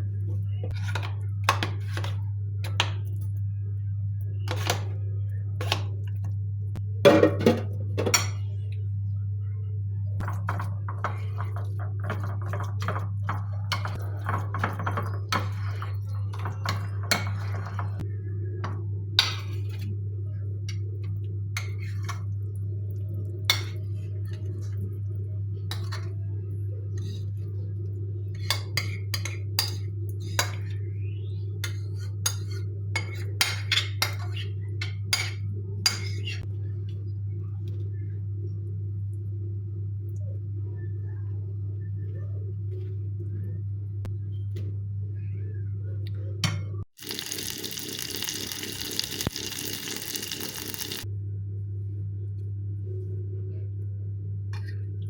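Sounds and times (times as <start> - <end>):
dishes and cutlery clinking: 10.2 - 18.0, 31.6 - 36.5
steady low hum: 47.6 - 55.0.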